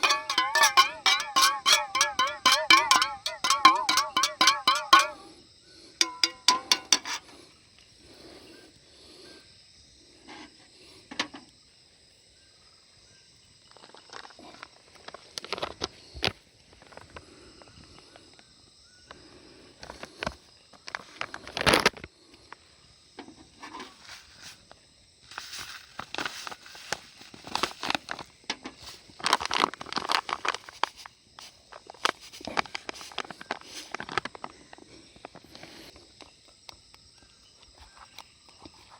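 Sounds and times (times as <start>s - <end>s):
handling clicks and rustles: 0.0s - 5.3s, 6.0s - 7.4s, 25.3s - 36.3s
insects droning: 0.0s - 38.9s.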